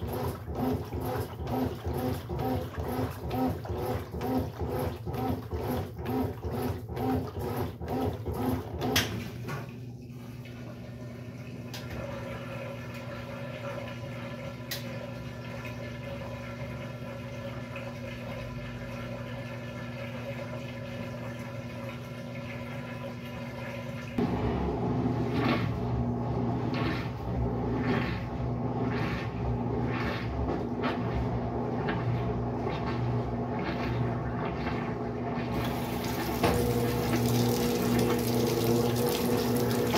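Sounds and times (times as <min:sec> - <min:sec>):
washing machine running: 0:00.0 - 0:39.9
water sloshing: 0:27.8 - 0:39.9.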